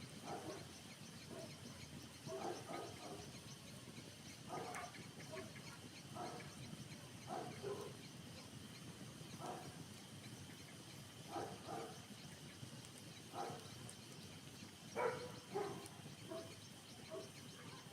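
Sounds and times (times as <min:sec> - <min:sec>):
steady low hiss: 0:00.0 - 0:17.9
dog barking: 0:00.2 - 0:00.7, 0:02.3 - 0:03.2, 0:04.5 - 0:05.5, 0:06.2 - 0:06.5, 0:07.3 - 0:08.0, 0:09.4 - 0:09.7, 0:11.3 - 0:12.0, 0:13.4 - 0:13.6, 0:15.0 - 0:16.5, 0:17.1 - 0:17.9.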